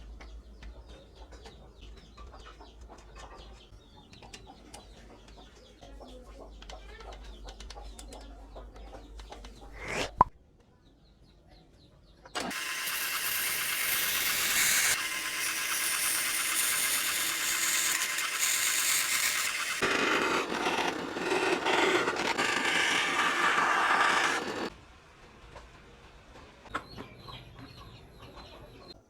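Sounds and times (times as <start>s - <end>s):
two-stroke mini motorcycle engine: 12.4s - 24.8s.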